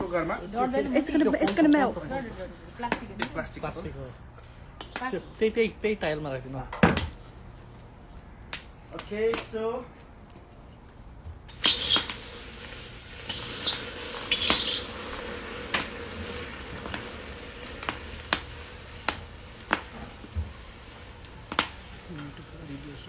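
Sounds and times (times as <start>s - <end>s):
oil sizzling in a pan: 11.5s - 23.0s.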